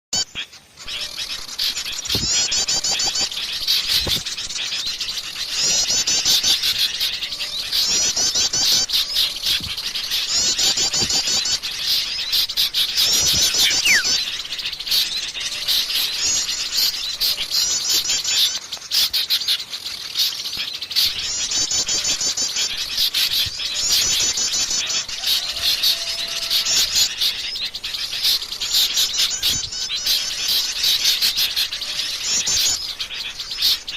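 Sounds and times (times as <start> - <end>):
songbirds chirping: 0.2 - 33.9
bursts of high chattering: 13.2 - 14.3.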